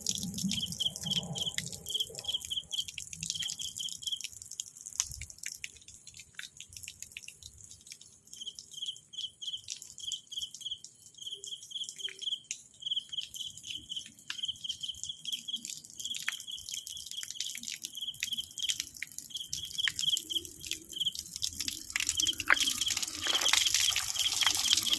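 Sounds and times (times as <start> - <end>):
insects chirping: 0.4 - 4.2, 16.3 - 24.9.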